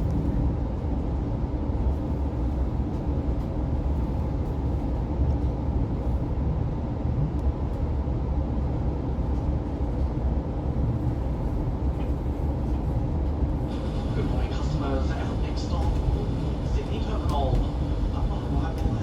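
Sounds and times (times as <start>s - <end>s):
train carriage rumbling on track: 0.0s - 19.0s.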